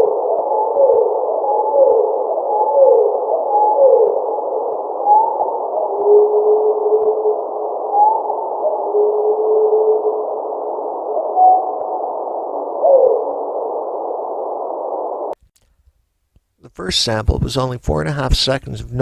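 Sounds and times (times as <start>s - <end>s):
slowed bird chirps like low whistles: 4.8s - 10.3s.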